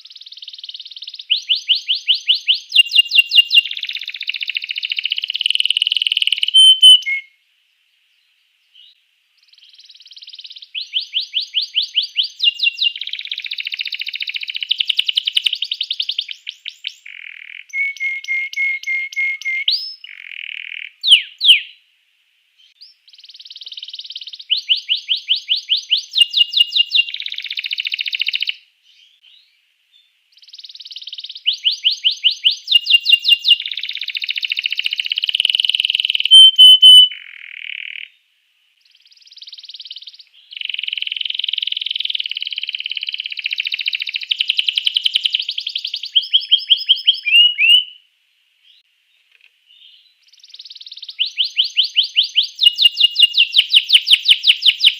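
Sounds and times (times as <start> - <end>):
canary singing: 0.0 - 7.4, 8.8 - 21.8, 22.6 - 29.5, 30.3 - 38.2, 38.9 - 48.0, 49.7 - 54.9.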